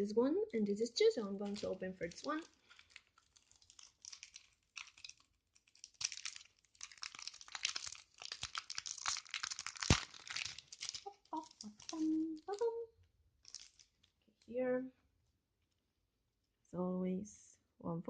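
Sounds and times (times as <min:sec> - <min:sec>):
packaging crinkling and tearing: 0:01.4 - 0:12.8, 0:13.4 - 0:14.2.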